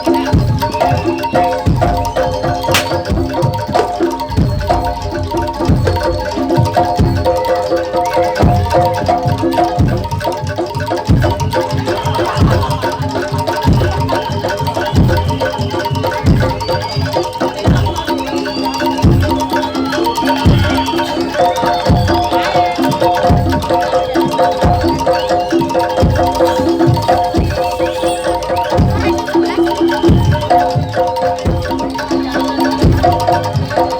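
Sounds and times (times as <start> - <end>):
metal mallet instruments: 2.8 - 5.7, 20.6 - 33.9.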